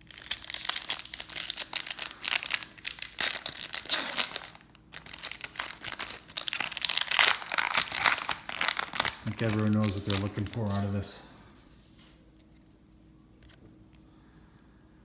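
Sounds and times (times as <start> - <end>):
plastic wrapper tearing and crinkling: 0.0 - 11.2.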